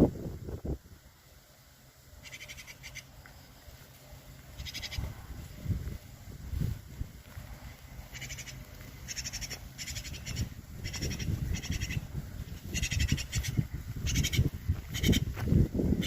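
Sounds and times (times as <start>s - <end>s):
magpie harsh rattling calls: 2.2s - 3.1s, 4.6s - 5.1s, 8.0s - 15.3s.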